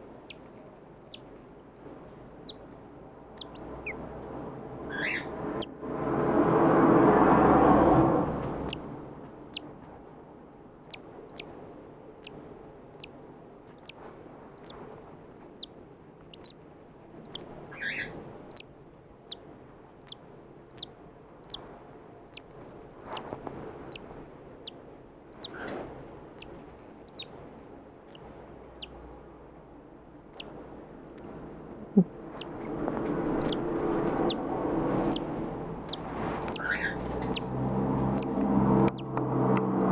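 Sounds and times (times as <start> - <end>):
chick peeping: 3.4 - 4.0, 16.3 - 16.6, 17.2 - 18.7, 22.3 - 27.4, 28.1 - 29.0, 32.0 - 39.1.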